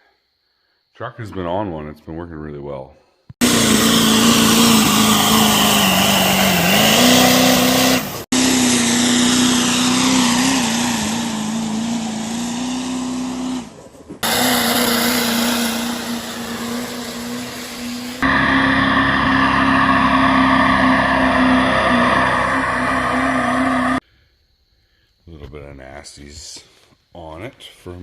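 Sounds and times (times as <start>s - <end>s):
truck engine revving under load: 3.4s - 24.0s.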